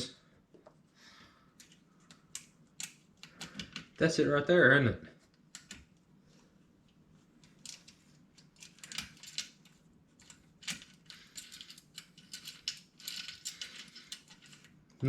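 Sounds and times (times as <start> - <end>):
metal hardware clicking and rattling: 7.4 - 14.8.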